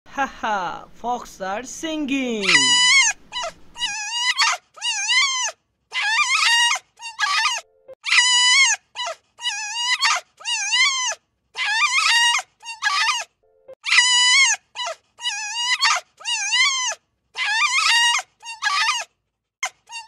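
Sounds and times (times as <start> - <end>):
wild canid whining calls: 2.5 - 13.3, 13.9 - 19.1.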